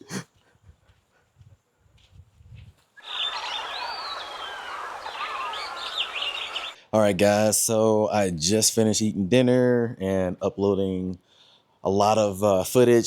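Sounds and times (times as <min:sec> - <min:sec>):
birds chirping and whistling: 0:03.0 - 0:06.8
long rising and falling whistle: 0:03.0 - 0:06.8.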